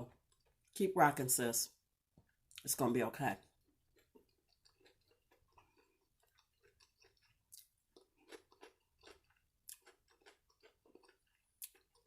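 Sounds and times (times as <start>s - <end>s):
chewing crunchy food: 0.1s - 0.8s, 3.4s - 12.0s.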